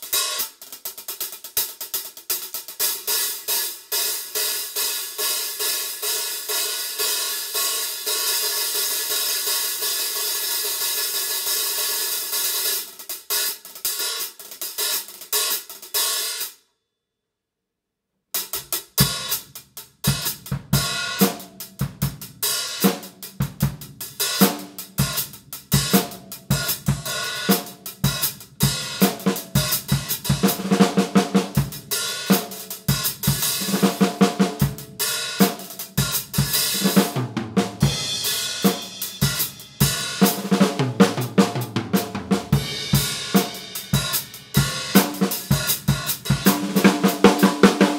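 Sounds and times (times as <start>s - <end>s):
hi-hats struck with sticks: 0.0s - 16.6s, 18.4s - 47.9s
snare drum: 20.1s - 47.9s.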